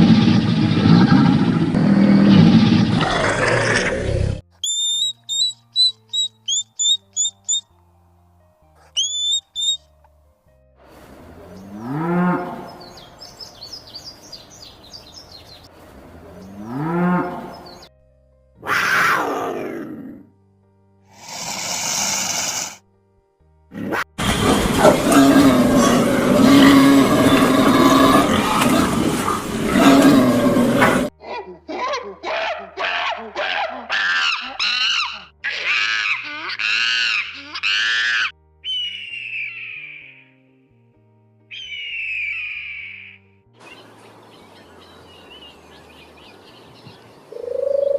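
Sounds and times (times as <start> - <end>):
quiet background music: 4.3 - 47.9
high-pitched animal calls: 4.6 - 7.6, 8.8 - 9.8, 32.3 - 40.3, 41.5 - 43.2
small birds chirping: 4.6 - 7.8, 8.8 - 9.8, 12.6 - 15.7, 38.7 - 40.2, 41.5 - 43.0, 43.6 - 47.9
cow mooing: 11.4 - 12.9, 16.2 - 17.6, 24.2 - 31.1.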